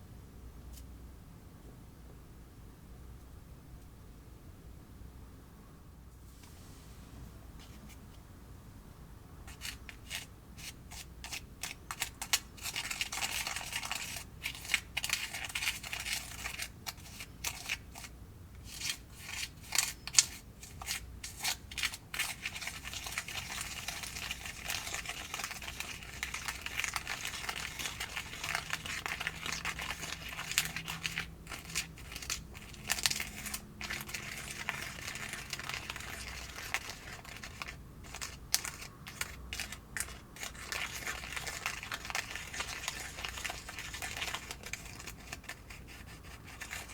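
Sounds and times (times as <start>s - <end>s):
plastic crinkling and rustling: 11.6s - 46.9s.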